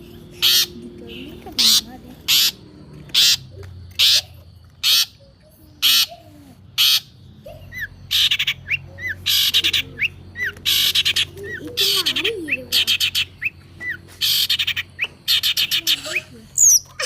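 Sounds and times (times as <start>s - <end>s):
bird chick squawking: 0.4s - 0.8s, 1.5s - 17.0s.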